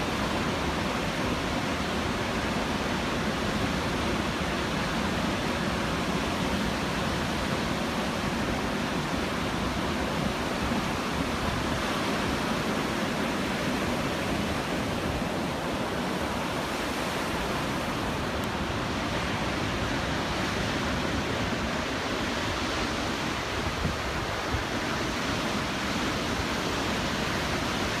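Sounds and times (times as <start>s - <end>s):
ocean surf breaking: 0.0s - 28.0s.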